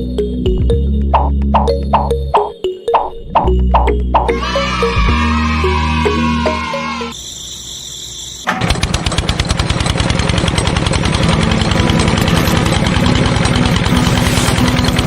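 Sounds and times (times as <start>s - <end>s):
small tractor engine running: 8.5s - 15.0s.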